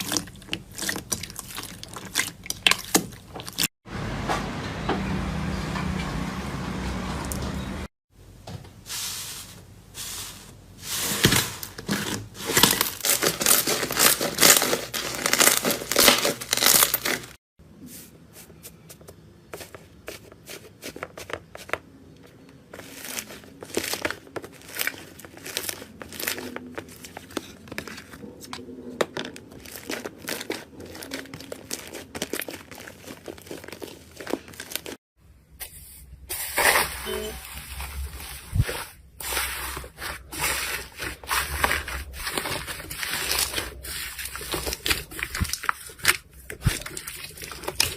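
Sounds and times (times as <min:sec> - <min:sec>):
slime crackling and popping: 0:12.6 - 0:17.3, 0:29.4 - 0:35.0.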